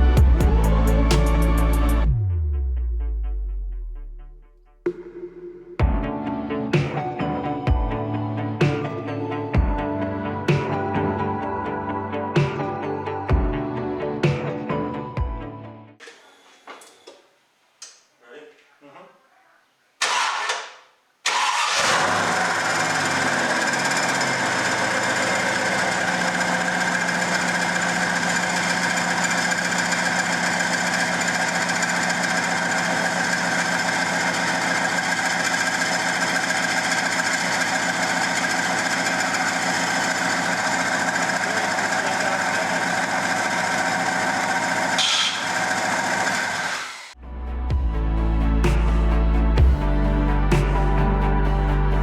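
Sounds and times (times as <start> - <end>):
car engine starting and idling: 20.0 - 47.2.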